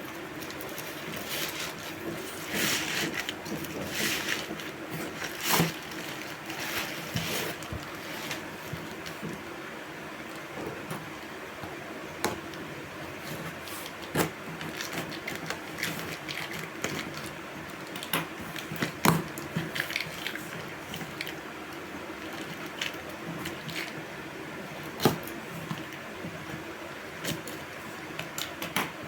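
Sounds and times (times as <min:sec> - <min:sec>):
paper and packaging rustling: 0:00.0 - 0:09.4.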